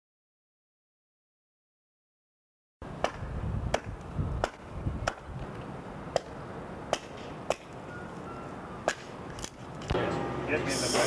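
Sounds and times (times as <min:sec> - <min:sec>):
sharp knocks: 0:03.0 - 0:05.3.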